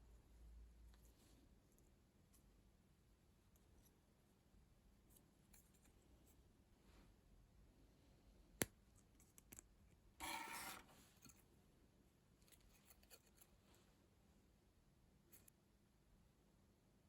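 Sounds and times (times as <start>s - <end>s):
short scraping rasp: 10.2s - 11.0s.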